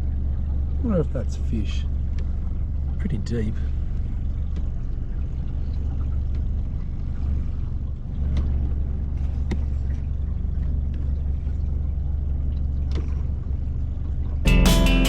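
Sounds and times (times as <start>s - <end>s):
outboard motor running: 0.0s - 15.0s
guitar music: 14.5s - 15.0s.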